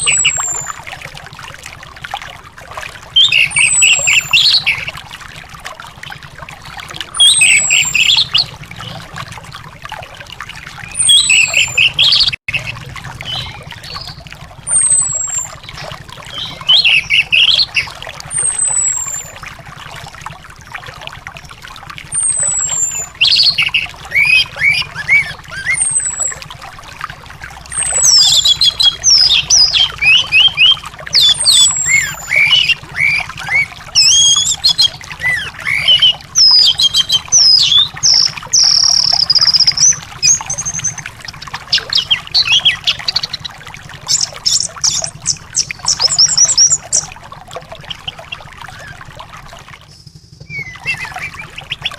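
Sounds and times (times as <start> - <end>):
ground thrush singing: 0.0 - 0.8, 3.2 - 4.9, 7.1 - 8.5, 10.8 - 19.4, 22.1 - 26.4, 27.7 - 47.1, 49.9 - 51.9.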